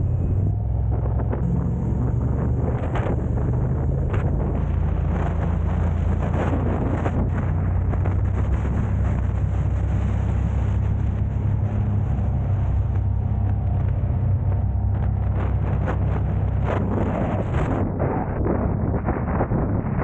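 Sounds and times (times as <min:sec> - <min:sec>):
car engine and road noise: 0:00.0 - 0:20.0
gusts of noise: 0:00.0 - 0:20.0.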